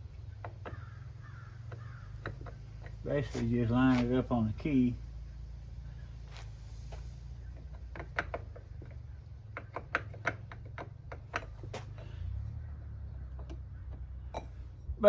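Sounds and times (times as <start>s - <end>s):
small metal clicks and taps: 7.6s - 12.1s.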